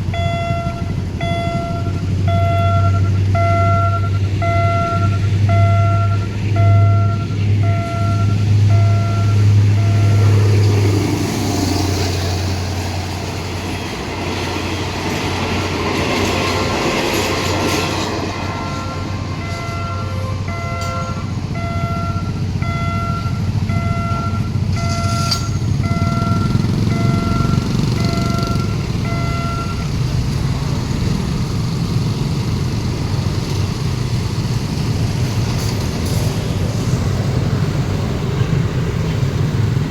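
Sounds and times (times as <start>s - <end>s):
carriages rumbling over track: 0.0s - 39.9s
diesel locomotive passing: 0.0s - 39.9s
level crossing alarm beeping: 0.1s - 10.4s, 18.4s - 30.0s.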